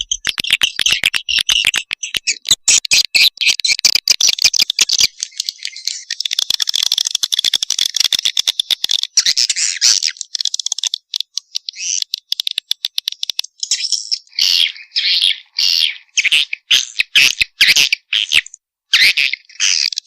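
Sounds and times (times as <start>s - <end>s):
swiftlet clicks and twitters: 0.0s - 9.3s, 10.0s - 14.3s.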